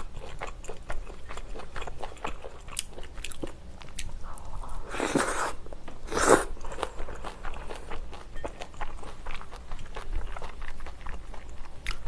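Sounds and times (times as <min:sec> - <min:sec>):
wet slurps: 0:04.9 - 0:06.5.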